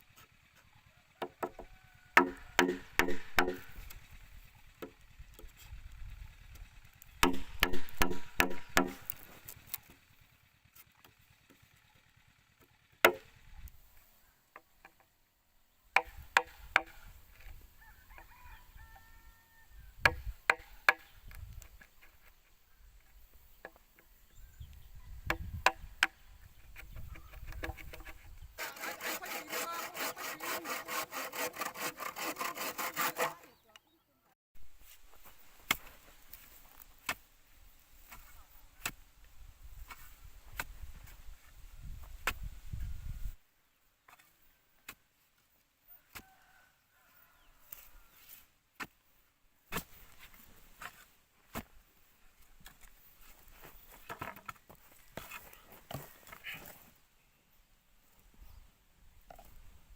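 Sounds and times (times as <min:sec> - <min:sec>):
knocks and taps on bamboo: 0:01.2 - 0:04.0, 0:07.2 - 0:09.2, 0:13.0 - 0:13.3, 0:14.5 - 0:15.1, 0:16.0 - 0:17.0, 0:20.0 - 0:21.4, 0:25.2 - 0:26.2, 0:26.8 - 0:28.1
hand saw cutting bamboo: 0:01.3 - 0:05.7, 0:07.2 - 0:10.0, 0:26.8 - 0:33.6.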